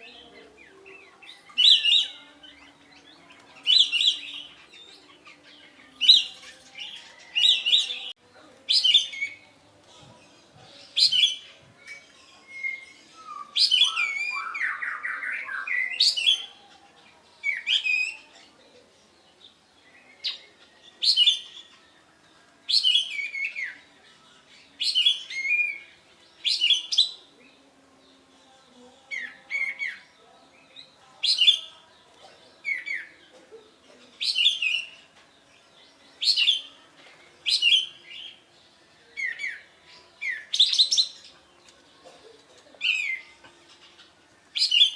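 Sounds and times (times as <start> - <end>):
bird singing high calls: 0.0 - 16.8, 19.4 - 21.9, 22.7 - 27.6, 32.5 - 36.8, 37.4 - 41.6, 42.8 - 44.9.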